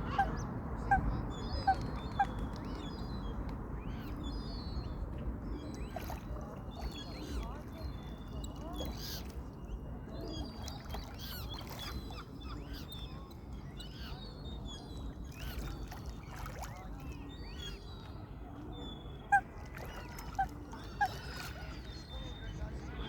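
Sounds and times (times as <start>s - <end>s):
coots calling: 0.1s - 1.0s.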